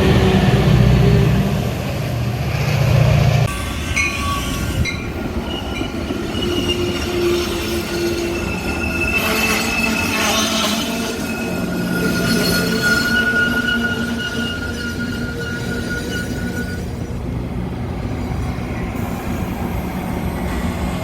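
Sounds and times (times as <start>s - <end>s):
train rumble: 0.0s - 21.0s
train wheels squealing on rails: 3.4s - 17.2s.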